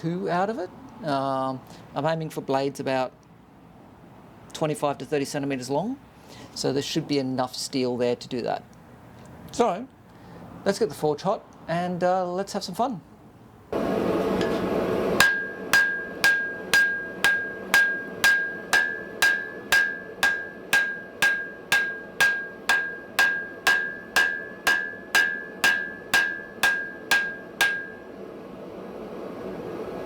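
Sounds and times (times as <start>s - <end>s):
gas forge roar: 13.8s - 30.0s
hammer striking iron on anvil: 14.4s - 28.2s.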